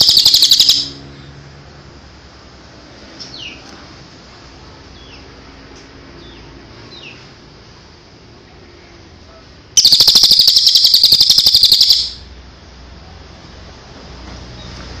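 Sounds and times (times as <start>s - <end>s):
songbird chirps and trill: 0.0s - 1.0s, 9.8s - 12.2s.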